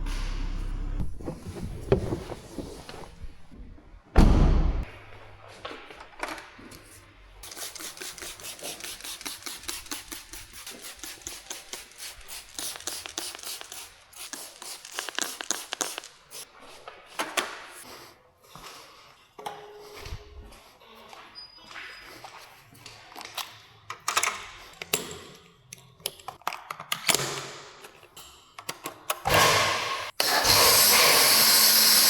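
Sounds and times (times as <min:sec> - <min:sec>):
brush scrubbing a surface: 0:07.4 - 0:15.7.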